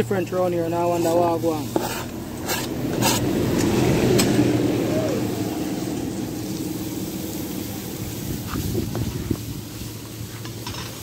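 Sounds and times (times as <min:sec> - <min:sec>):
loud sizzle in hot oil: 0:00.8 - 0:11.0
vegetables scraped off cutting board: 0:00.9 - 0:03.3.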